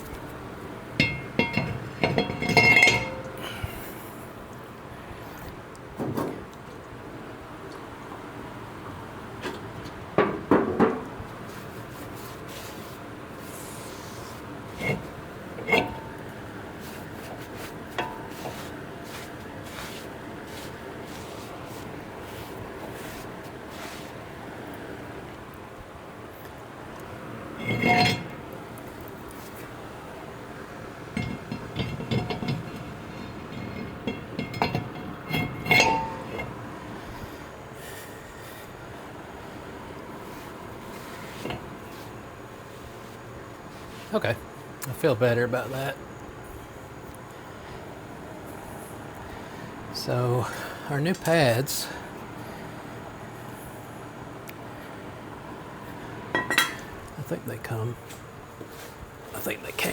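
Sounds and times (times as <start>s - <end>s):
metal tools clinking: 1.0s - 3.5s, 27.6s - 28.4s, 31.2s - 36.6s, 56.4s - 57.1s
sharp knocks and clunks: 10.2s - 11.1s.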